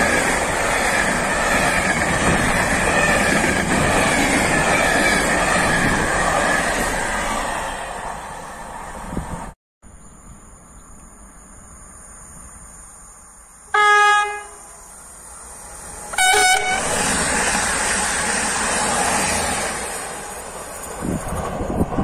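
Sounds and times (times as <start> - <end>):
train rushing past: 0.0 - 9.6, 11.9 - 22.0
train horn: 13.7 - 14.8, 16.1 - 17.0.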